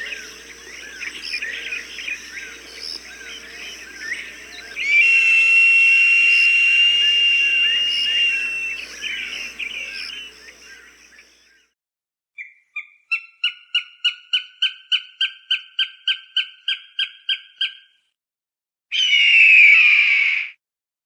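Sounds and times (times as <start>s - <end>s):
falcon short sharp calls: 1.2s - 10.6s
falcon harsh scream: 4.2s - 10.4s, 19.0s - 20.5s.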